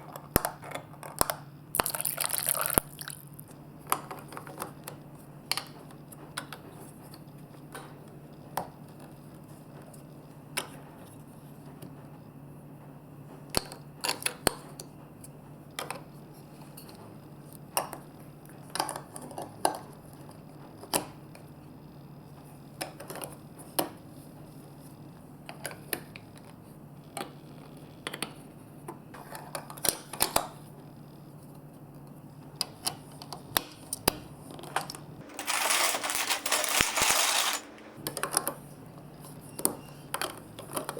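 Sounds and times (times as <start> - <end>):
marbles clicking on toy run: 35.3 - 37.9.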